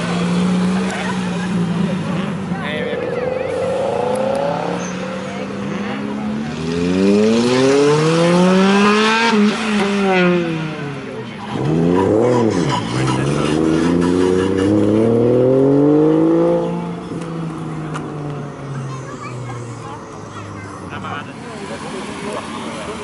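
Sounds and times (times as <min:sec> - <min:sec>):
car accelerating away: 0:00.0 - 0:23.0
car engines revving: 0:00.0 - 0:23.0
engine rev blip: 0:02.6 - 0:10.3.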